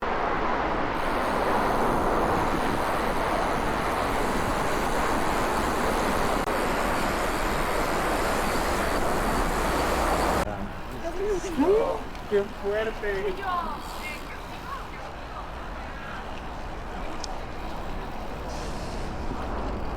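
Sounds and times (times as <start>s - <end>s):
rushing air: 0.0s - 12.4s, 17.7s - 19.9s
traffic noise: 0.0s - 19.9s.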